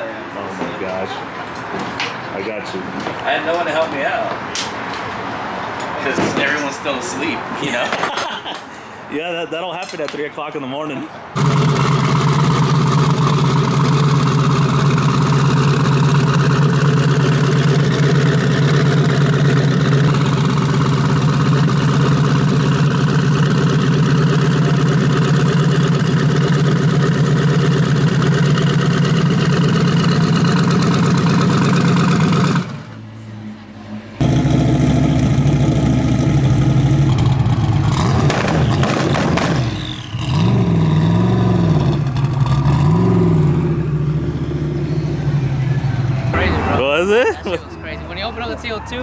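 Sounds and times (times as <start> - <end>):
car engine running: 11.4 - 33.0, 34.2 - 47.2.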